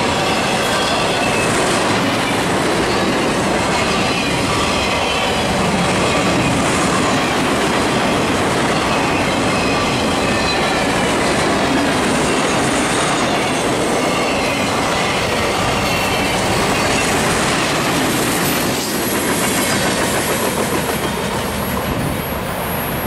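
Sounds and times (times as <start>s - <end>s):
high wheel squeals: 0.0s - 7.4s, 8.6s - 11.2s, 12.1s - 19.6s
steel wheels rumbling on rail: 0.0s - 23.0s.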